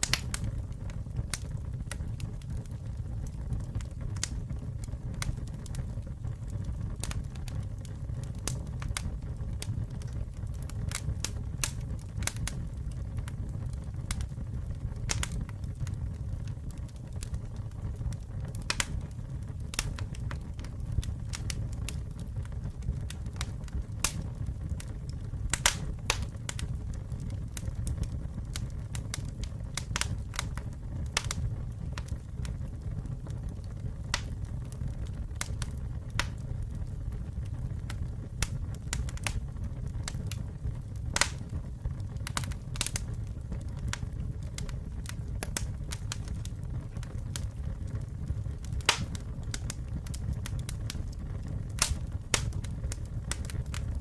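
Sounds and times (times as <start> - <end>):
campfire rumble: 0.0 - 54.0
wood crackling and popping: 0.0 - 54.0.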